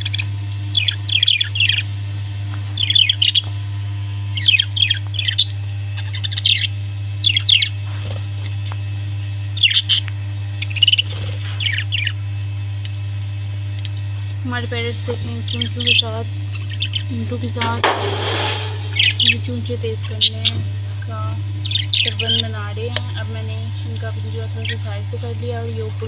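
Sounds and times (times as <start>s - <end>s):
parrots chirping: 0.0s - 1.9s, 2.7s - 3.5s, 4.3s - 8.2s, 9.5s - 12.2s, 15.1s - 20.7s, 21.5s - 26.0s
steady low hum: 0.0s - 26.0s.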